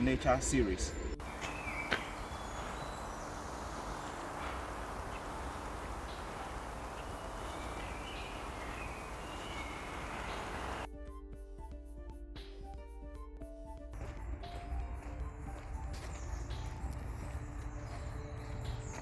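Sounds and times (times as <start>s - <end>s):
faint bird chirps: 0.9s - 10.9s
steady background hiss: 1.2s - 10.9s.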